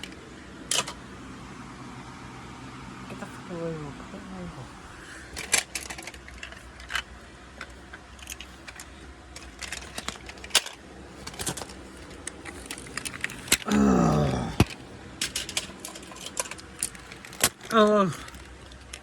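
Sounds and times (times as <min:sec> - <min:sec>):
light clicks and rattles: 0:05.3 - 0:13.7, 0:14.6 - 0:19.0.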